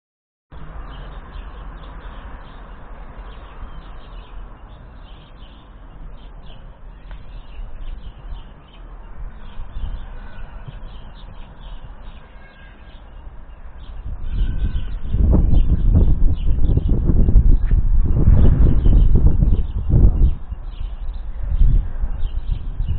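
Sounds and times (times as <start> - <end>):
small birds chirping: 0.6 - 22.9
steady low rumble: 13.2 - 22.9.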